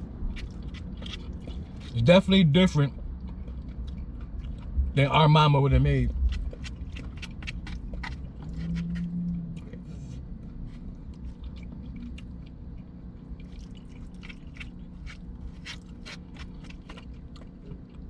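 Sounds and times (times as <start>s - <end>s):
low background rumble: 0.0s - 18.0s
man chewing food: 0.0s - 18.0s
short hummed tone: 8.3s - 10.7s.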